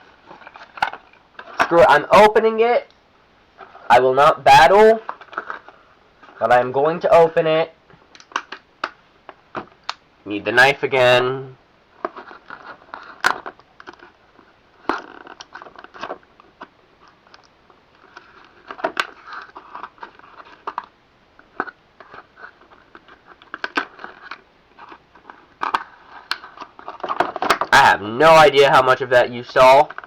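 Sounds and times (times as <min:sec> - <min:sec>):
hard plastic crackling and clicking: 0:00.2 - 0:01.8, 0:05.0 - 0:06.4, 0:07.9 - 0:10.0, 0:12.0 - 0:27.9, 0:29.4 - 0:30.0.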